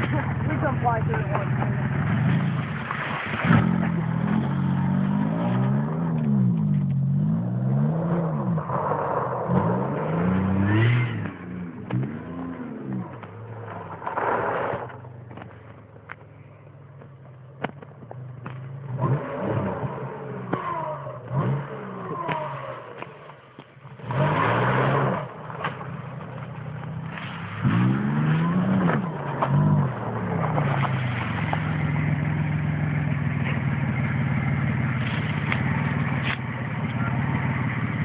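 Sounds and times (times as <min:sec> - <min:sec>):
car engine revving: 0:00.0 - 0:16.2, 0:17.6 - 0:38.0
water rushing burst: 0:02.0 - 0:05.2.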